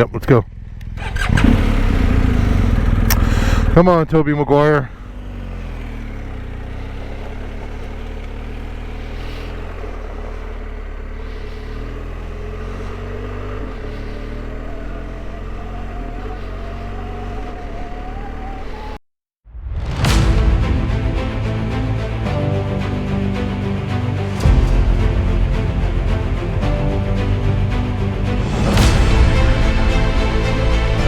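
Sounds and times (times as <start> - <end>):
motorcycle engine running: 0.1 - 3.8, 4.7 - 19.0.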